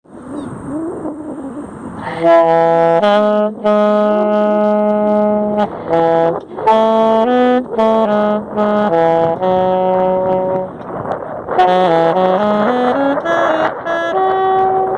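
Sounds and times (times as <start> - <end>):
saxophone improvising: 0.7 - 14.9.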